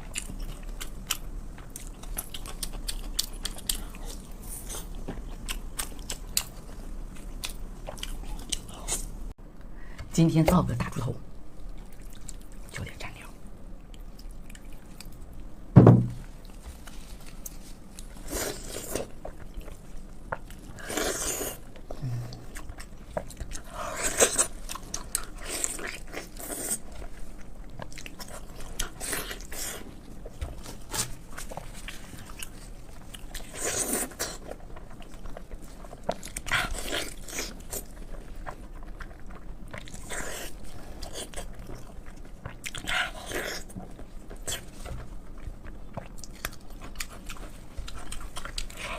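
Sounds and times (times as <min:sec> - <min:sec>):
sharp knock: 0:15.8 - 0:16.2.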